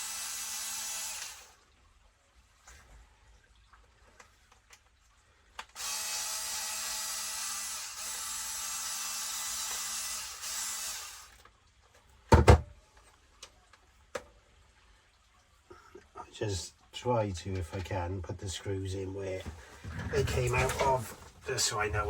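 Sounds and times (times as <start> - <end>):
electric screwdriver running: 0.0 - 1.6, 5.8 - 11.4
loud knocks on bench: 12.3 - 12.7.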